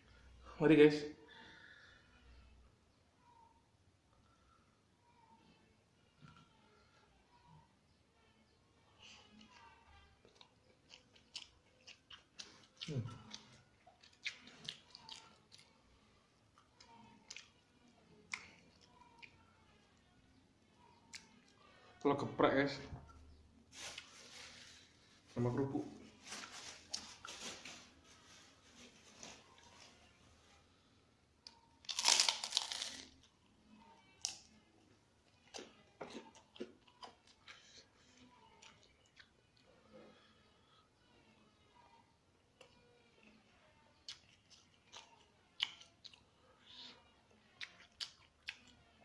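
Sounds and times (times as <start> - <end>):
chewing soft food: 9.0 - 21.8, 31.4 - 33.3, 35.2 - 40.8, 42.6 - 49.0
chewing crunches: 10.2 - 15.8, 31.5 - 33.2, 44.0 - 46.2, 47.6 - 48.8
crunching crispy crackers: 31.8 - 33.3.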